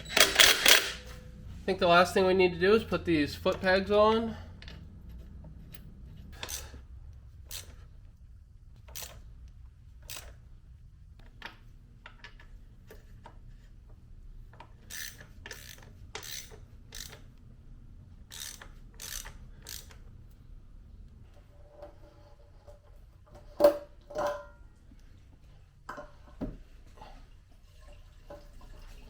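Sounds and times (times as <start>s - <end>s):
hand ratchet clicking: 0.0s - 1.0s, 6.4s - 6.8s, 7.4s - 7.9s, 8.8s - 9.2s, 10.0s - 10.4s, 14.8s - 17.3s, 18.3s - 20.0s.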